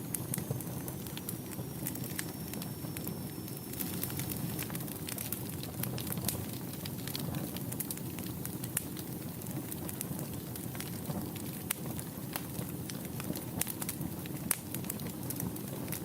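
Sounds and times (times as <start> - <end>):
low rush of flame: 0.0 - 15.9
wood fire crackling and popping: 0.0 - 16.0.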